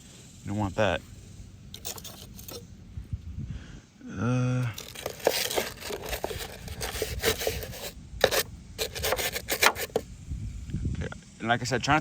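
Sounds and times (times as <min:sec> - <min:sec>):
brush scrubbing: 0:01.8 - 0:02.6, 0:04.8 - 0:10.0.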